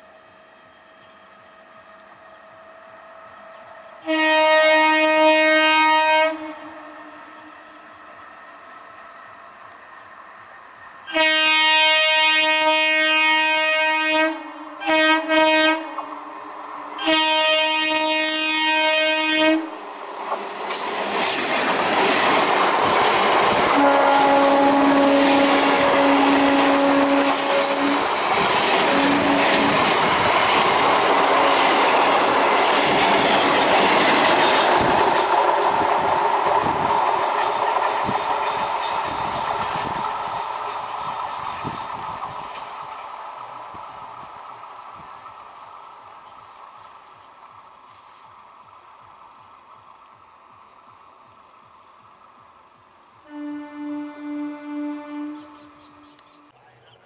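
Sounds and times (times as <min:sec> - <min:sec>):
faint lower train horn: 0:00.0 - 0:09.4, 0:11.0 - 0:19.8, 0:23.7 - 0:28.2, 0:28.8 - 0:30.2, 0:31.3 - 0:32.4, 0:53.2 - 0:57.0
train wheels rumbling over rails: 0:00.0 - 0:56.6
train horn blasts: 0:04.0 - 0:08.0, 0:11.0 - 0:16.2, 0:17.0 - 0:19.8, 0:23.7 - 0:28.2, 0:28.8 - 0:29.9, 0:31.3 - 0:31.9, 0:53.2 - 0:56.5.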